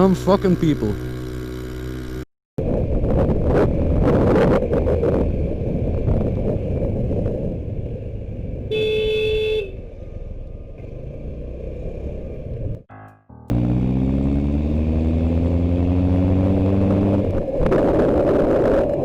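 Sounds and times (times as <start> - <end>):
motorcycle road and wind noise: 0.0 - 12.9, 13.5 - 19.0
vehicle horn blast: 8.7 - 9.8.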